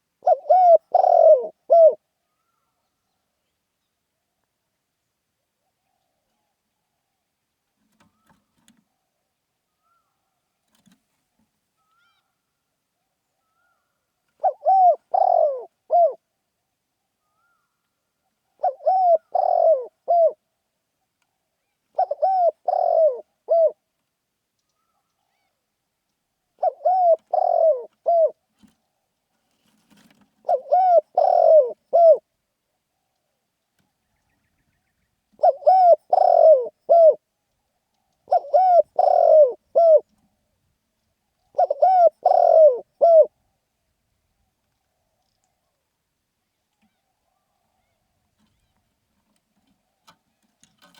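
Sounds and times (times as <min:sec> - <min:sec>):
dove cooing: 0:00.2 - 0:02.0, 0:13.5 - 0:16.2, 0:18.6 - 0:20.4, 0:21.9 - 0:23.8, 0:26.6 - 0:28.7, 0:30.0 - 0:32.3, 0:35.4 - 0:37.2, 0:38.2 - 0:40.2, 0:41.5 - 0:43.4.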